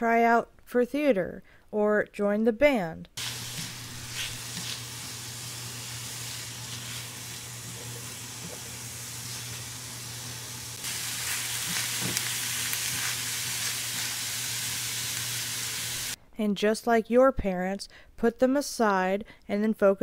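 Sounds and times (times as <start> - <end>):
onions sizzling in a frying pan: 3.2 - 16.2.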